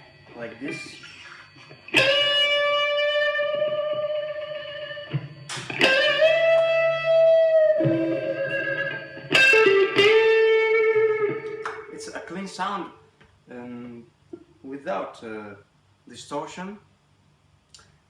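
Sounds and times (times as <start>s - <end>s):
electric guitar sustained notes: 0.0s - 12.9s.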